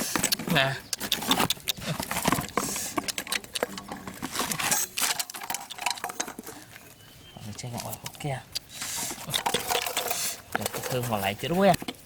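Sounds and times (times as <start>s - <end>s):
clicks and light knocks: 0.2s - 6.8s.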